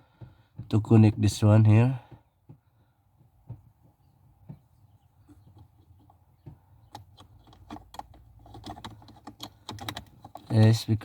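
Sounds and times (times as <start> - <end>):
plastic clicks and knocks: 5.3 - 10.8.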